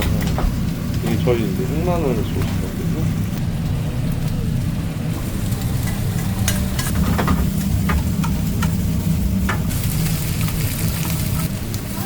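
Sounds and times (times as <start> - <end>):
low hum: 0.0 - 11.9
food sizzling in a pan: 5.1 - 12.0.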